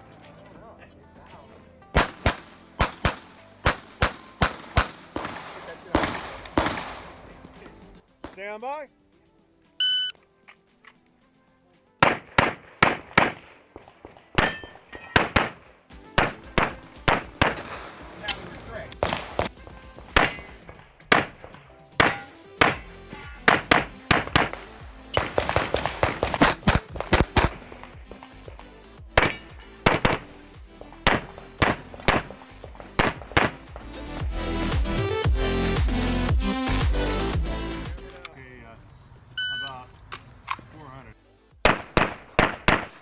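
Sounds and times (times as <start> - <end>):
electronic background music: 0.0 - 13.4, 14.4 - 38.6
pistol gunshots: 2.0 - 8.6, 12.0 - 30.4, 31.0 - 33.9, 39.2 - 40.8, 41.6 - 43.0
metallic ringing: 14.4 - 15.2.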